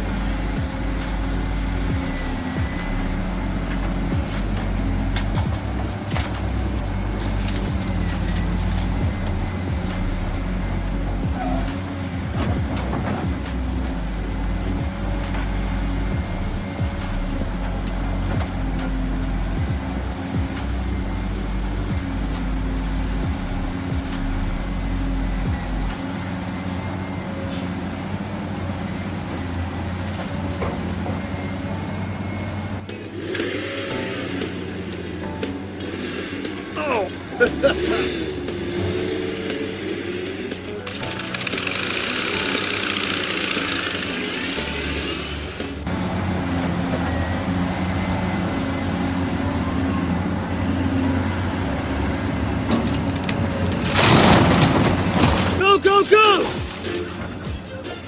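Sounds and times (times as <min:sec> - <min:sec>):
deep low rumble: 0:00.0 - 0:26.0
motor and gearbox hum: 0:00.0 - 0:58.0.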